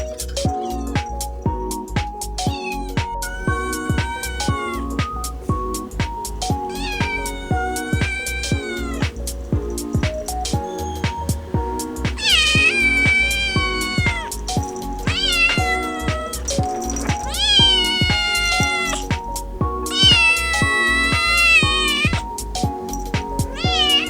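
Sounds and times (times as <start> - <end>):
background music with steady beat: 0.0 - 24.0
cat meowing: 0.5 - 1.1, 2.4 - 5.3, 6.4 - 11.4, 12.2 - 19.3, 19.9 - 22.3, 23.4 - 24.0.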